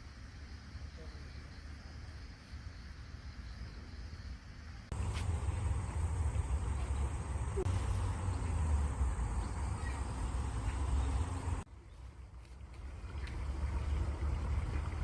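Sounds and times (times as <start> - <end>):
faint bird chirp: 9.2 - 12.1
flowing water rushing: 12.6 - 15.0.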